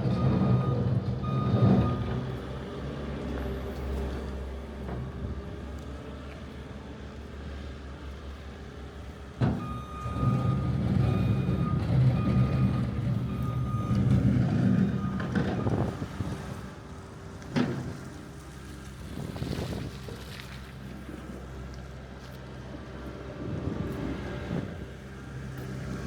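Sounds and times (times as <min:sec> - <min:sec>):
reversing alarm beeps: 0:00.1 - 0:02.1, 0:09.6 - 0:16.2.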